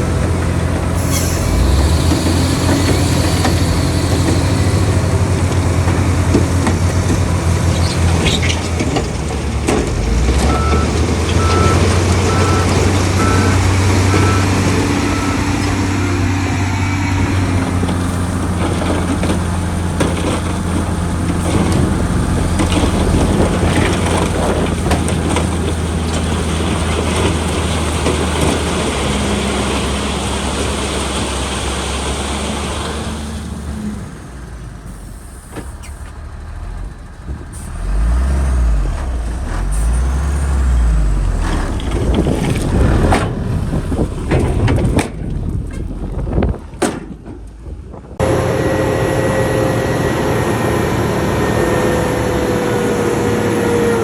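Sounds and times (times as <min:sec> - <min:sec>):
heavy diesel machinery running: 0:00.0 - 0:54.0
reversing alarm beeps: 0:10.5 - 0:17.0
knocks and clanks: 0:41.4 - 0:48.2.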